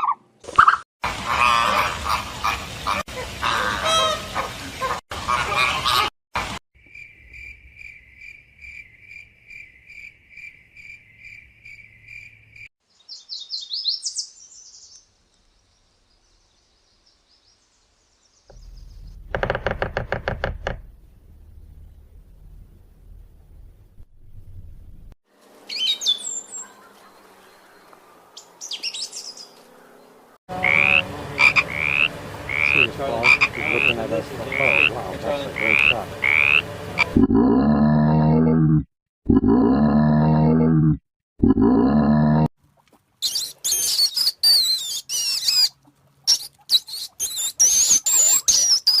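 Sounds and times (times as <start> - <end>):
small bird chirping: 9.6 - 15.1, 43.2 - 49.0.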